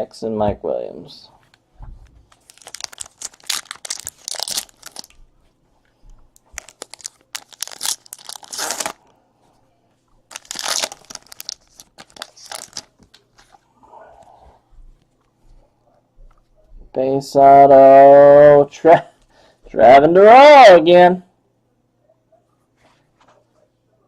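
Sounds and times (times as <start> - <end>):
card wrappers tearing and crinkling: 2.3 - 5.2, 6.4 - 9.0, 10.3 - 13.6.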